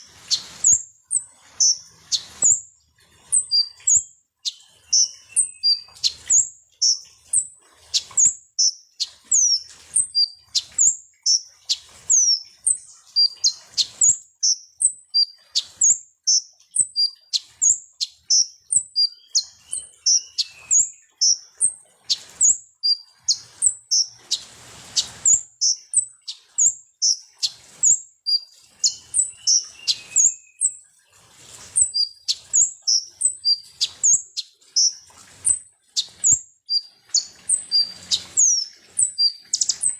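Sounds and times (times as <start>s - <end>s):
bird chirping: 0.0s - 2.6s, 3.3s - 30.8s, 31.4s - 39.9s
bird trill: 0.0s - 2.6s, 3.3s - 24.4s, 25.0s - 30.8s, 31.8s - 39.9s.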